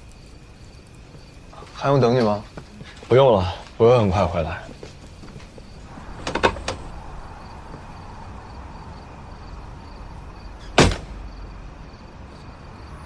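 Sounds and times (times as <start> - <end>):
door shutting loudly: 5.9 - 7.8, 10.6 - 11.3
door clicks: 6.1 - 7.0, 10.8 - 11.2.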